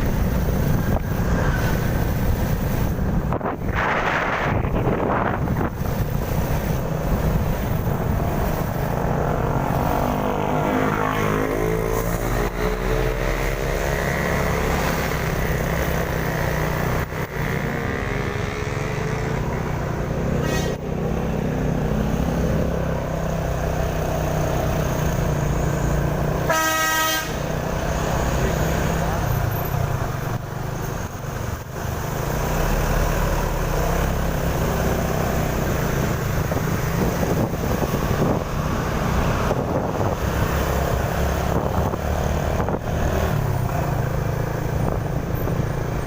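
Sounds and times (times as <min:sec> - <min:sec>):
vehicle engines in traffic: 0:00.0 - 0:46.0
engine revving: 0:06.4 - 0:26.5, 0:32.0 - 0:46.0
car horn: 0:26.4 - 0:27.6.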